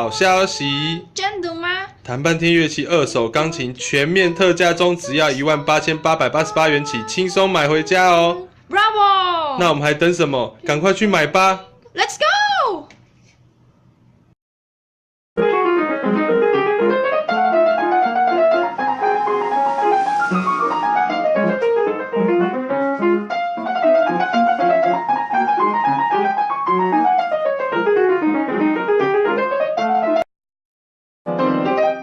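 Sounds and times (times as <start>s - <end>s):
solo piano arpeggios: 15.4s - 30.2s.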